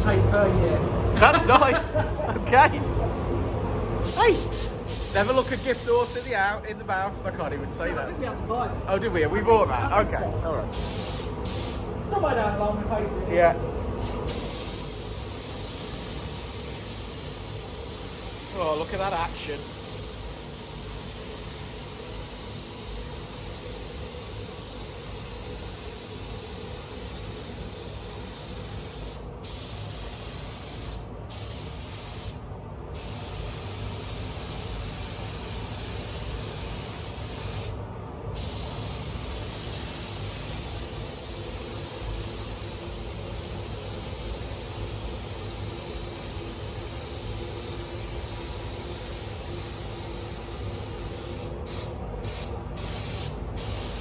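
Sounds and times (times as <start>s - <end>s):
spray gun hissing: 4.0s - 6.3s, 10.7s - 11.9s, 14.3s - 32.4s, 33.0s - 37.8s, 38.4s - 54.0s.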